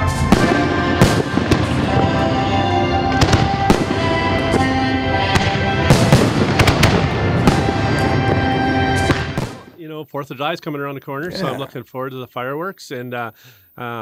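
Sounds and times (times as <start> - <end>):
fireworks bursting with sharp bangs: 0.0 - 9.8
background music: 0.0 - 9.9, 11.2 - 11.8.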